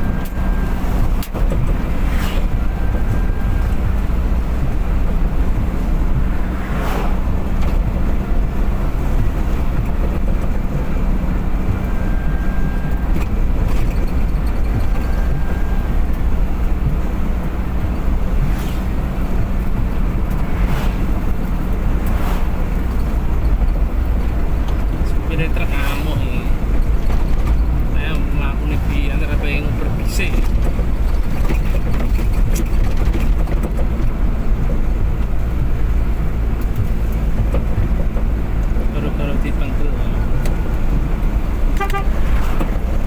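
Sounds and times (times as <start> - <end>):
vehicle engine and road noise: 0.0 - 43.0
passing air rushes: 0.4 - 9.6, 17.2 - 23.4.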